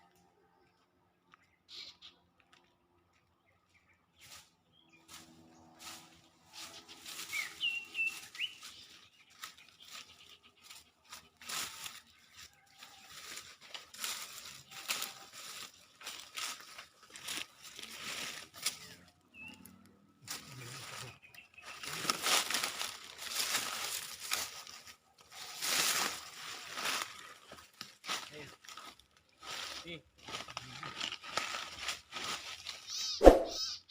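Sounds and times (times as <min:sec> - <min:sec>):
short high bird chirps: 0:32.9 - 0:33.9.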